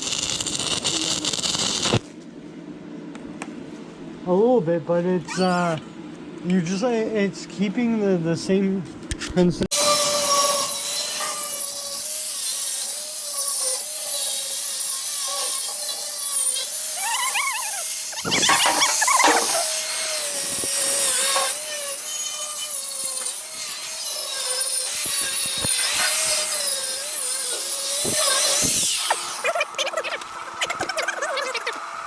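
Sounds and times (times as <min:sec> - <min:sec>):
welding arc crackling: 0:00.0 - 0:02.0, 0:09.8 - 0:30.5
wavering whine: 0:18.1 - 0:21.9.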